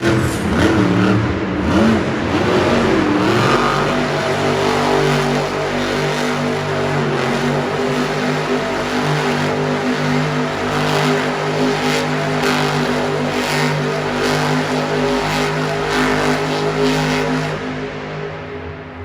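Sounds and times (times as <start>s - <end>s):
truck engine revving: 0.0s - 19.0s.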